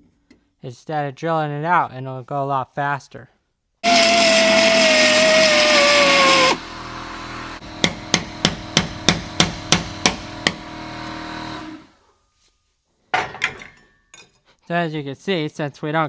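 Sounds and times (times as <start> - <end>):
belt sander grinding metal: 3.8 - 7.6.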